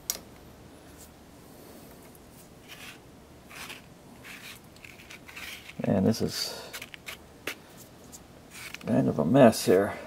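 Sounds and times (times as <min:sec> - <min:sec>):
hands rustling wires: 0:01.9 - 0:09.0
soft scrapes: 0:02.3 - 0:05.8.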